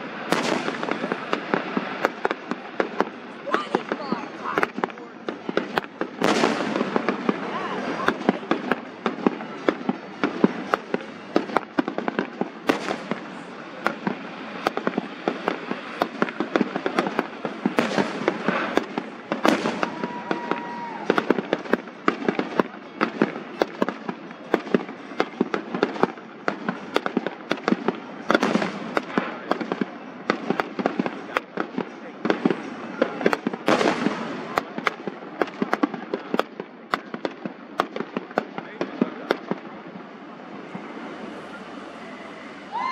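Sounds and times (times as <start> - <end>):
loud firework bangs: 0.0 - 41.1
fireworks popping and crackling: 0.0 - 41.6.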